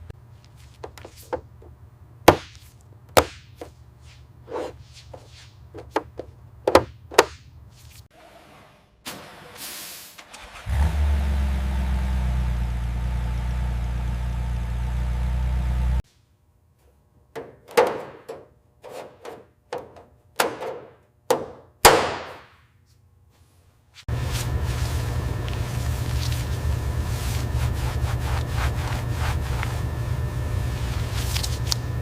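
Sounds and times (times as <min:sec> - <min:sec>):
car engine running: 0:10.7 - 0:16.0.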